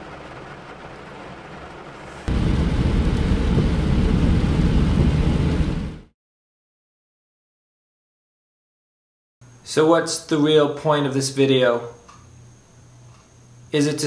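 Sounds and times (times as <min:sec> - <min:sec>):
heavy rain on car windshield: 0:00.0 - 0:06.1
car cabin hum: 0:00.1 - 0:06.1.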